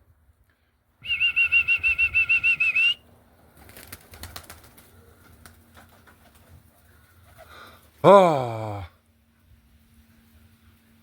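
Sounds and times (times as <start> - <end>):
trilled warbling whistle: 1.0 - 3.0.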